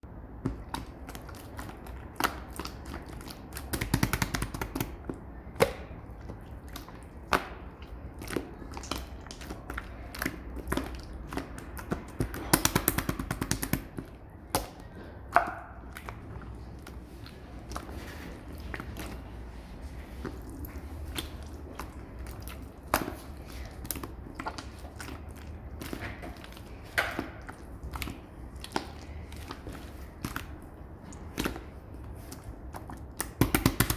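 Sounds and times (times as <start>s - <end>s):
slime clicking and popping: 0.4s - 6.0s, 6.8s - 16.2s, 32.8s - 33.9s
slime crackling rapidly: 0.6s - 14.8s, 20.3s - 33.9s.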